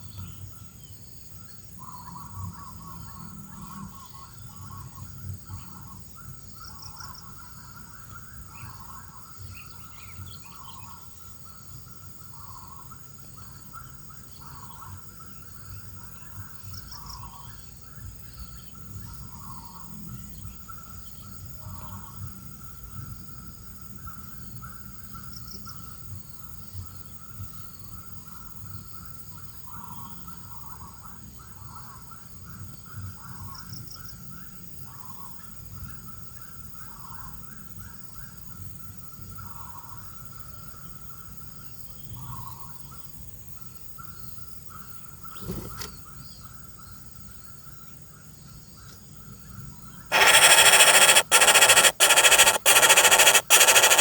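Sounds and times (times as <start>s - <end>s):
faint steady drone: 50.1s - 54.0s
loud static hiss: 50.1s - 54.0s
soft animal calls: 50.1s - 54.0s.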